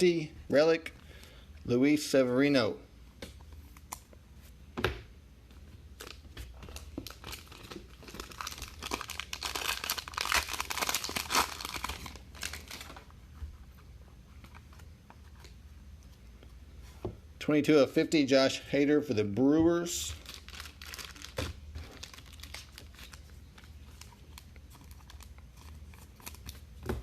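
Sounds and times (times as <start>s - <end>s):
wrapper tearing and crinkling: 6.0s - 13.0s, 20.2s - 26.6s.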